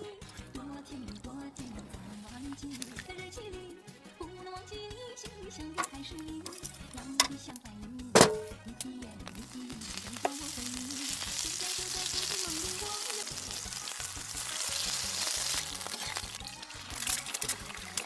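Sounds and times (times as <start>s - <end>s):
meat sizzling on grill: 9.2s - 18.0s.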